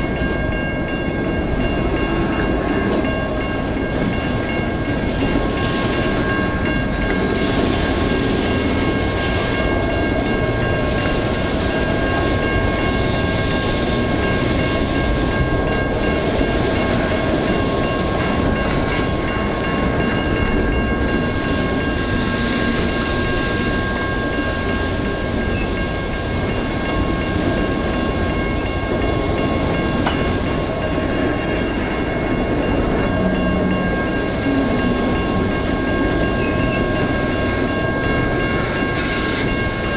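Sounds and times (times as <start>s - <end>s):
freight cars rolling on rails: 0.0s - 39.9s
steady high tone: 8.0s - 39.9s.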